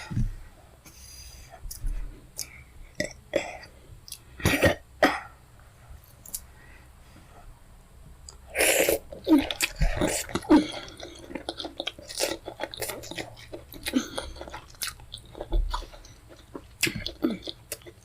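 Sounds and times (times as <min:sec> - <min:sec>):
chewing and mouth smacks: 0:09.4 - 0:18.0.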